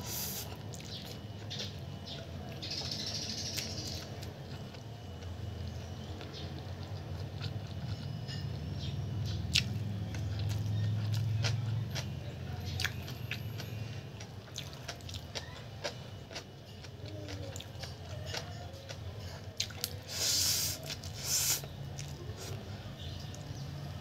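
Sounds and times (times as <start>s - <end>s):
low steady hum: 0.0s - 24.0s
person chewing with wet smacks: 0.1s - 2.6s, 3.6s - 8.1s, 9.2s - 12.1s, 12.7s - 13.4s, 14.2s - 22.6s.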